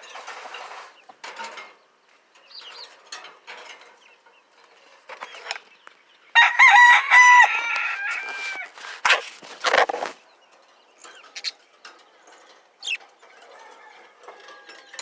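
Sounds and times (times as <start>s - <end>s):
scratchy rustles: 0.2s - 1.0s, 7.6s - 10.3s
budgerigars chirping: 9.7s - 11.9s, 12.8s - 13.0s.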